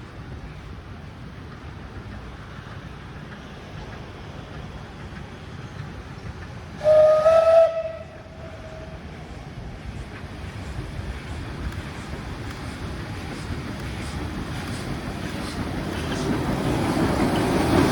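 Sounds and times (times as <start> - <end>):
railway whistle: 6.8 - 9.1.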